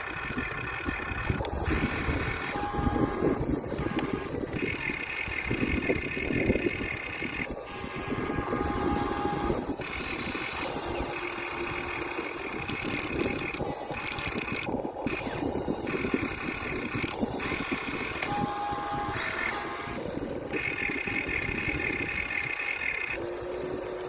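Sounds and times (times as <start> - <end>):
electric motors whining: 0.0 - 24.0.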